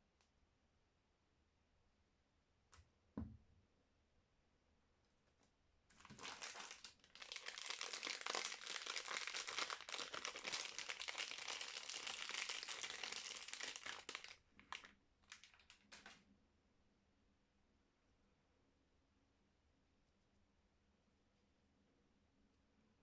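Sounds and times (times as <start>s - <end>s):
wrapping crinkling by hand: 5.9s - 16.2s.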